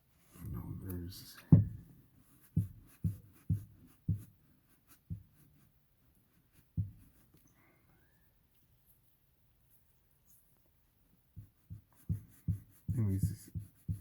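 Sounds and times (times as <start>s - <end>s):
soft low thumps: 1.4s - 5.4s, 6.7s - 7.2s, 11.3s - 14.0s.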